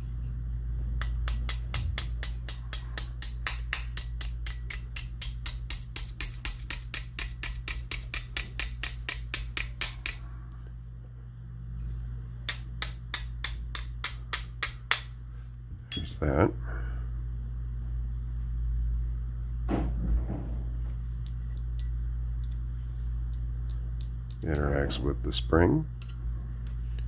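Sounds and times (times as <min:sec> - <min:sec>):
small hammer tapping a pin: 0:01.0 - 0:10.3, 0:12.5 - 0:15.1.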